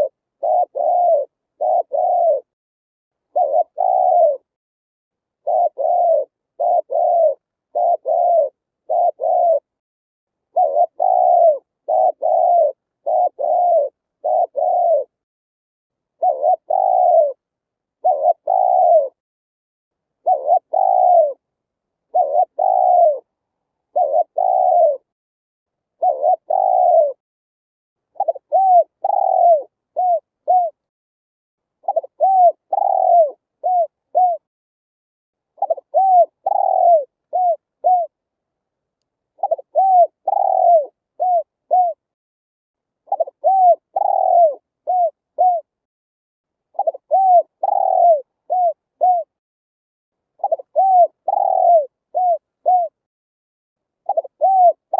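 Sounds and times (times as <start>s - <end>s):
dove cooing: 0.0s - 2.6s, 3.3s - 4.5s, 5.4s - 9.7s, 10.5s - 15.2s, 16.2s - 17.4s, 18.0s - 19.2s, 20.2s - 21.4s, 22.1s - 23.3s, 23.9s - 25.1s, 26.0s - 27.2s, 28.2s - 30.8s, 31.8s - 34.5s, 35.6s - 38.2s, 39.4s - 42.0s, 43.1s - 45.7s, 46.7s - 49.4s, 50.4s - 53.0s, 54.0s - 54.9s.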